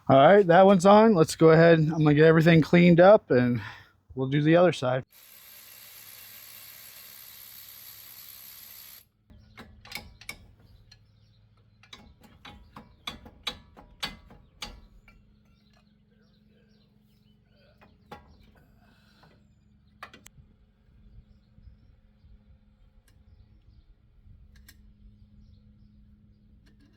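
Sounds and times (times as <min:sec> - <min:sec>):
ratchet clicking: 0:05.1 - 0:09.0
hand tools clicking and knocking: 0:09.3 - 0:15.9.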